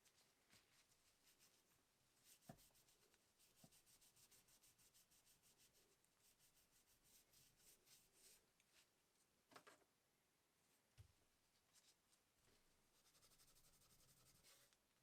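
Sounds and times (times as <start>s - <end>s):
rapid rubbing strokes: 0.7s - 8.4s, 13.0s - 14.6s.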